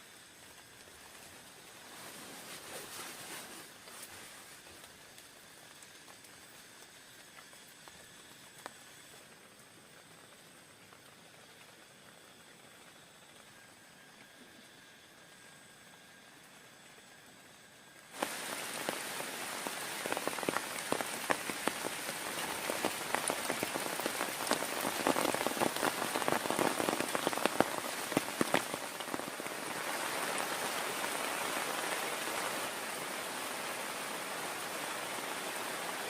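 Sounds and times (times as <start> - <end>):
raindrops striking a surface: 0.0 - 36.0
heavy rain: 17.9 - 36.0.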